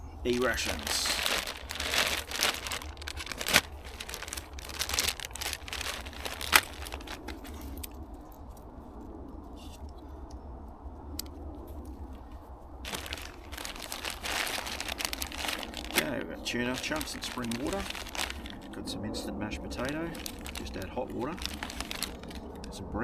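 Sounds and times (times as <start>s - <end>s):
packaging tearing and crinkling: 0.4s - 7.9s, 12.9s - 16.1s, 16.7s - 18.7s, 19.8s - 22.7s.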